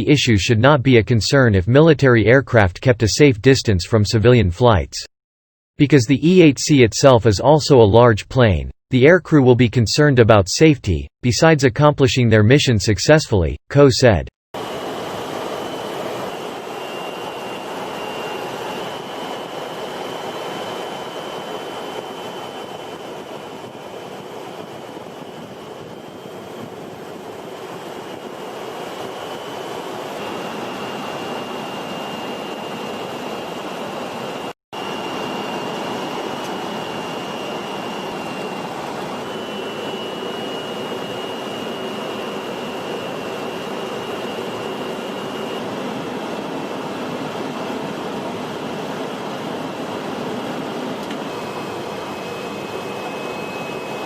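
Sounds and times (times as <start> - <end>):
jet engines whining: 14.6 - 54.0.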